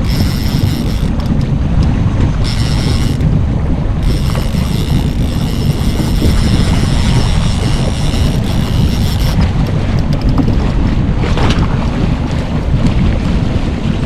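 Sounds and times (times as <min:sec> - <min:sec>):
boat engine rumble: 0:00.0 - 0:14.0
wind buffeting microphone: 0:00.0 - 0:14.0.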